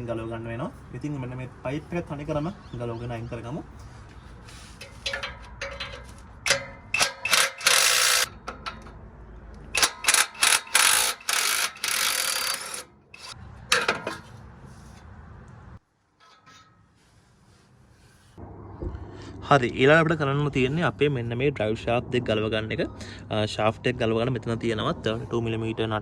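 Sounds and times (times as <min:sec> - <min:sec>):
power wrench bursts: 0:06.5 - 0:08.4, 0:09.7 - 0:14.2.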